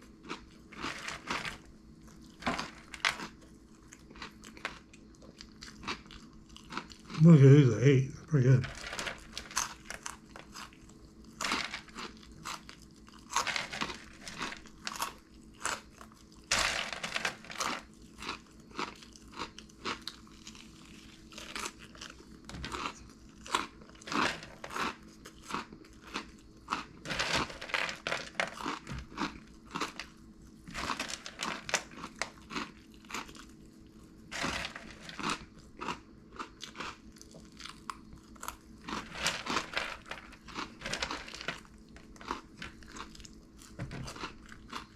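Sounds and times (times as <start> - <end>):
crunching and chewing snacks: 0.0 - 44.9.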